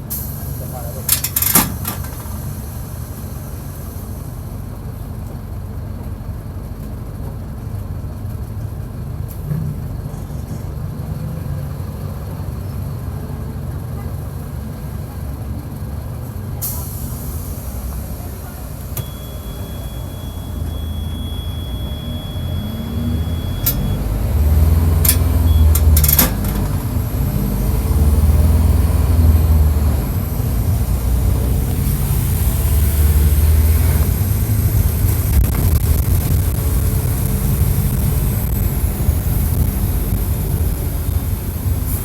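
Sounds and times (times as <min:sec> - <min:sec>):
bus diesel engine accelerating: 0:00.0 - 0:42.0
sharp clicks and rattles: 0:01.1 - 0:02.3, 0:25.0 - 0:26.9.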